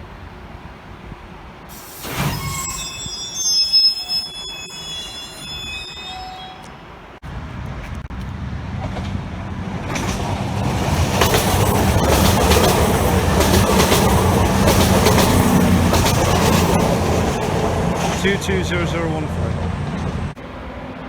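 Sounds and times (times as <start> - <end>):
train passing: 4.0 - 21.0
wheels clicking over rail joints: 7.7 - 20.4.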